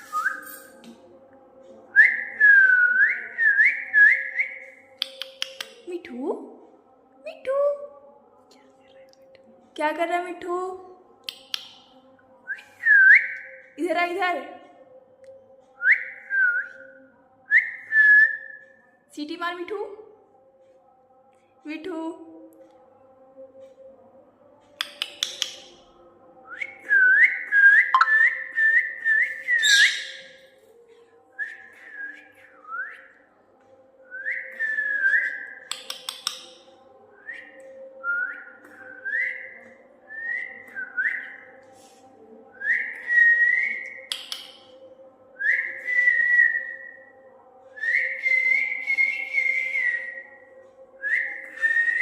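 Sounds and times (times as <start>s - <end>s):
parrot whistling: 29.5s - 30.3s.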